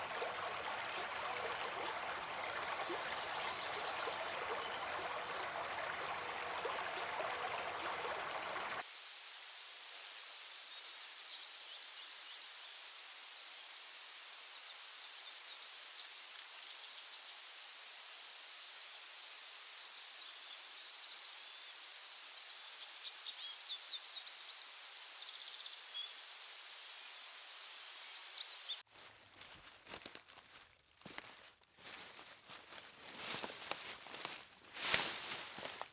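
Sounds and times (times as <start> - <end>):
stream water running: 0.0 - 29.6, 30.2 - 35.9
high-pitched insect drone: 8.8 - 28.8
steady hiss: 8.8 - 28.8
soft crackles: 28.9 - 35.9.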